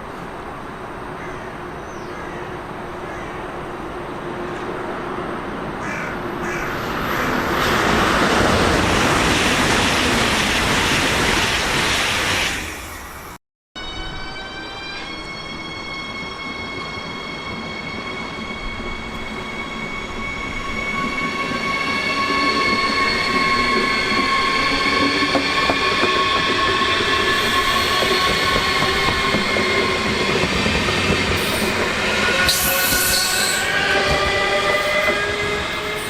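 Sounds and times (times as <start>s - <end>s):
electric train high whine: 2.5s - 36.0s
rail rumble: 3.7s - 13.2s.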